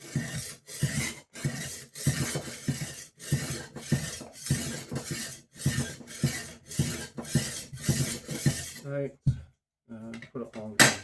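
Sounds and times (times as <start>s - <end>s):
knife sharpener scraping: 0.0s - 8.8s.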